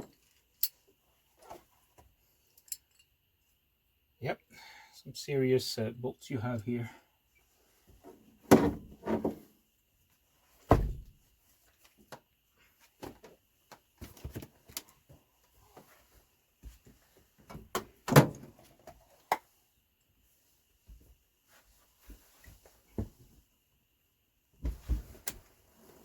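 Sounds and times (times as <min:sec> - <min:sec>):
light clicks and taps of tools: 0:00.0 - 0:03.2
loud metal clunks and thuds: 0:10.7 - 0:11.1.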